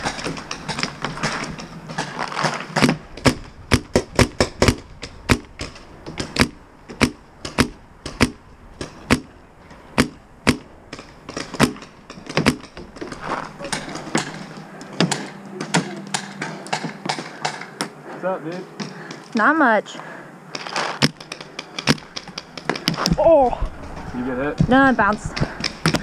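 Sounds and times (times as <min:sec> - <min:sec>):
paintball markers firing: 0:20.6 - 0:23.2.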